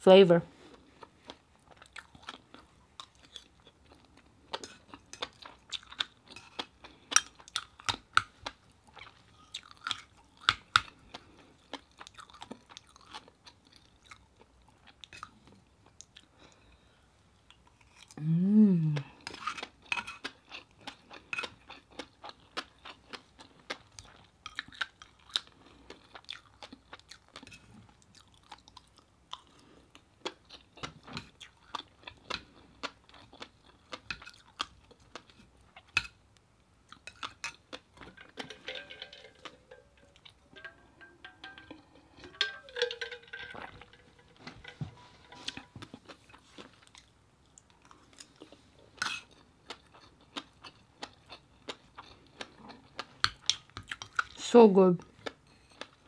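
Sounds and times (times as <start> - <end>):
chewing and lip-smacking: 0.8 - 16.6, 19.0 - 36.2, 45.5 - 54.4
metal spoon scraping plate: 38.2 - 45.8.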